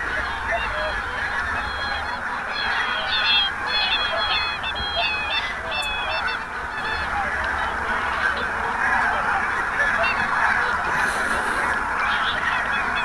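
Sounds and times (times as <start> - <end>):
flock of geese honking: 0.0 - 13.0.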